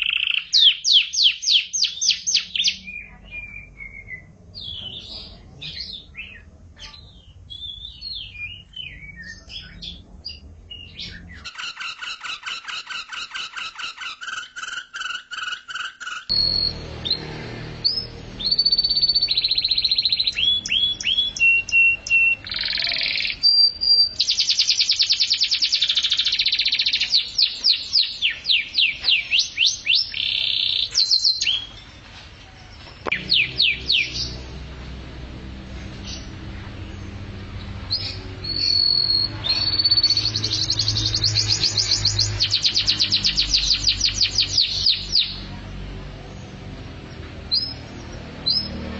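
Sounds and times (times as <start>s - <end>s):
canary singing trills: 0.0s - 45.8s.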